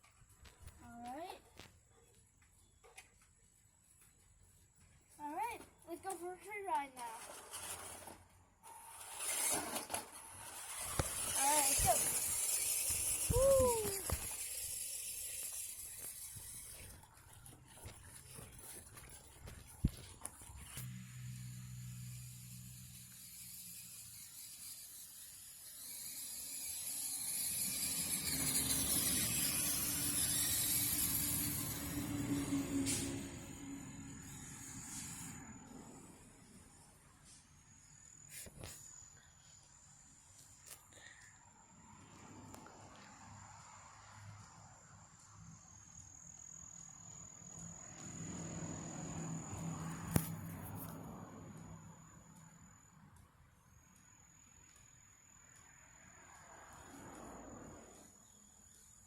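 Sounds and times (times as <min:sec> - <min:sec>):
tyres hissing over ground: 0:05.2 - 0:36.4
rc car motor whining: 0:06.7 - 0:41.4, 0:45.5 - 0:52.9.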